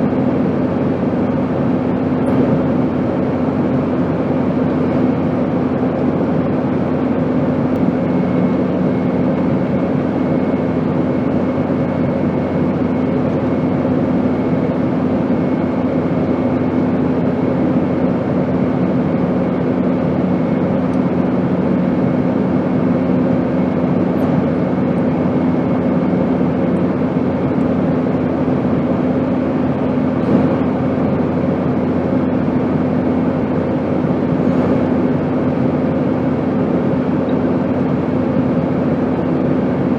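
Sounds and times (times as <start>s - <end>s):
airplane drone: 0.0s - 39.9s
low hum: 0.0s - 39.9s.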